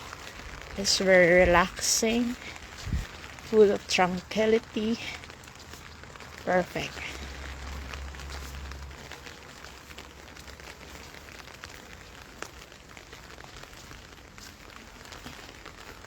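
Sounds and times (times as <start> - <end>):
rain pattering: 0.0 - 16.0.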